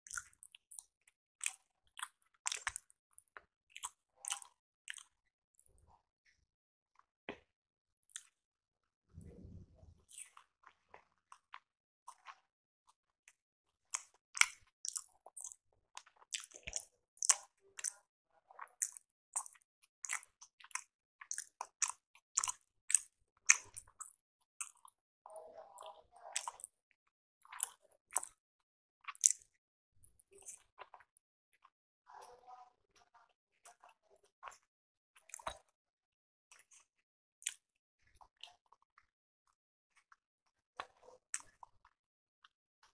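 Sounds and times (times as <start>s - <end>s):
person chewing with mouth clicks: 0.1s - 2.9s, 3.7s - 5.2s, 13.9s - 18.0s, 18.6s - 25.0s, 25.8s - 26.7s, 27.4s - 28.4s, 29.0s - 31.0s, 35.2s - 35.7s, 36.5s - 39.1s, 40.8s - 42.0s.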